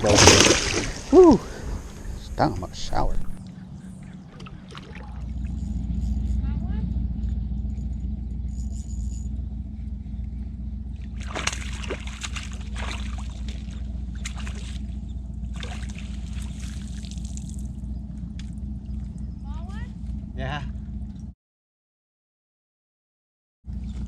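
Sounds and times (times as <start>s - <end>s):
water sloshing and splashing: 0.0s - 2.0s, 4.2s - 5.6s, 11.0s - 19.2s
distant motorboats droning: 0.0s - 21.4s, 23.7s - 24.0s.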